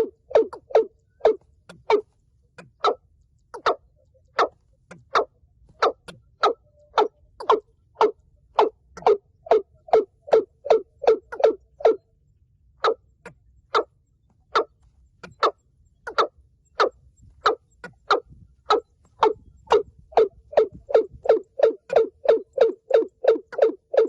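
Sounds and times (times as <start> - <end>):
bird calling kok notes: 15.3 - 24.0.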